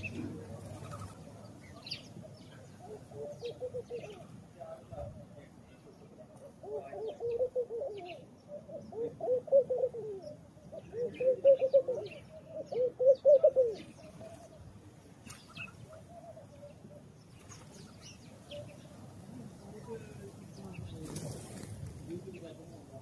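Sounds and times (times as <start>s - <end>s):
doves cooing: 0.0s - 4.4s, 6.2s - 14.8s, 15.4s - 17.2s
sparrows chirping: 0.0s - 4.8s, 5.4s - 21.6s.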